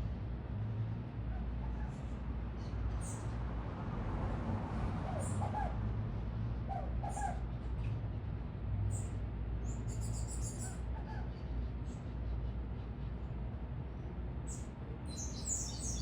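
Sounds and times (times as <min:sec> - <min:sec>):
low city rumble: 0:00.0 - 0:16.0
small birds chirping: 0:08.9 - 0:12.1, 0:14.5 - 0:16.0.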